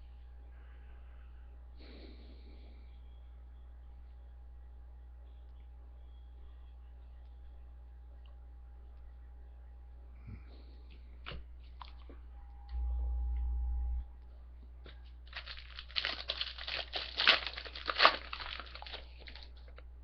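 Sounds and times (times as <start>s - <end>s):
brief low hum: 2.6s - 15.2s
foil wrapper tearing and crinkling: 15.3s - 19.8s.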